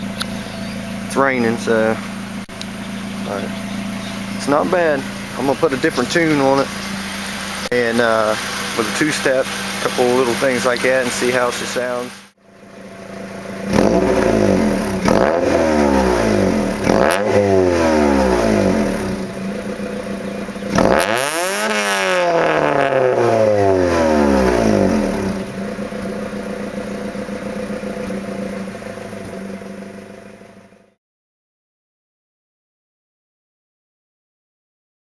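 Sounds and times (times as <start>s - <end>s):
car engine revving and idling: 0.0s - 31.0s.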